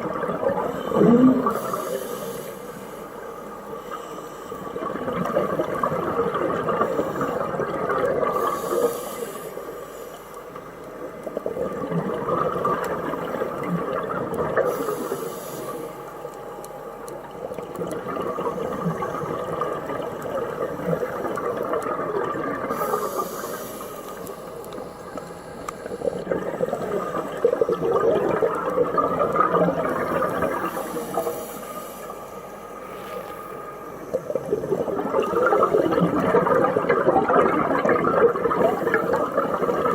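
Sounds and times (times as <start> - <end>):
exhaled bubbles rushing: 0.0 - 1.9, 4.7 - 8.6, 11.4 - 14.8, 17.5 - 23.7, 25.8 - 31.3, 34.1 - 39.9
regulator inhale hiss: 0.7 - 4.8, 8.3 - 10.9, 14.6 - 16.4, 22.7 - 27.5, 30.2 - 34.3.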